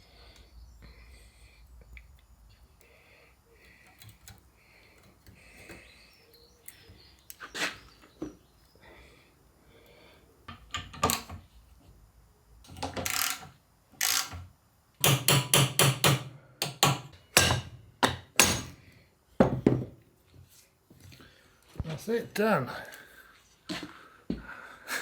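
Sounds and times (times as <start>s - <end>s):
hammer tapping on metal parts: 15.0s - 18.8s.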